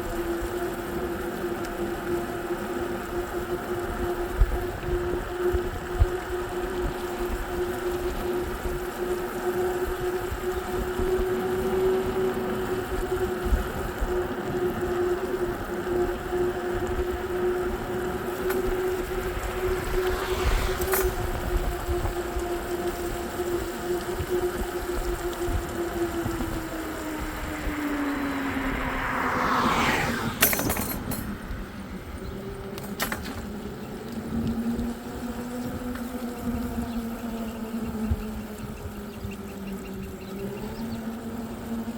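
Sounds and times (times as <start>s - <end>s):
vehicle motor whine: 0.0s - 41.9s
wind buffeting microphone: 3.1s - 41.9s
rushing noise: 17.6s - 22.7s, 25.5s - 32.8s.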